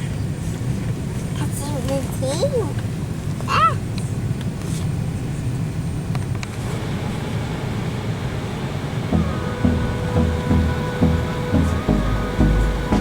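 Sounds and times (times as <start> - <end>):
airliner cabin rumble and hiss: 0.0 - 13.0
background music with a beat: 9.2 - 13.0.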